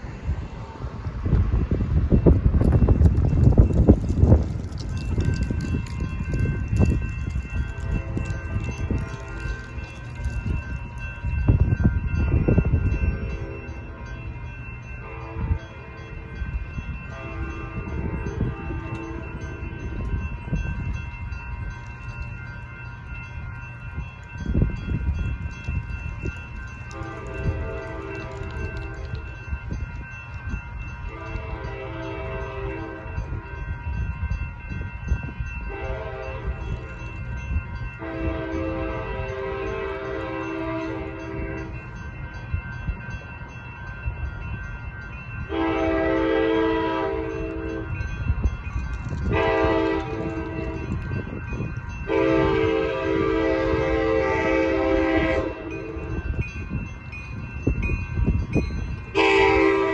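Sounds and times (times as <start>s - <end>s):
crossing bells ringing: 0.0s - 59.9s
low rumble of train: 0.0s - 59.9s
train horn blowing: 26.9s - 28.4s, 31.1s - 33.1s, 35.7s - 36.7s, 38.0s - 41.8s, 45.5s - 47.9s, 49.3s - 50.9s, 52.1s - 56.2s, 59.2s - 59.9s.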